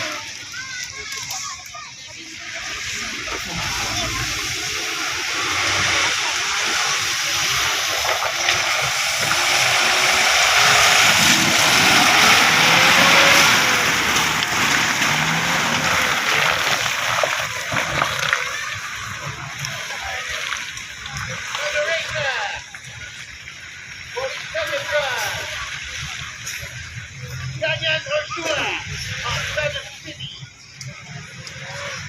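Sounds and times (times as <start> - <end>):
vehicle splashing through water: 0.0 - 32.0
engine revving: 2.6 - 20.5.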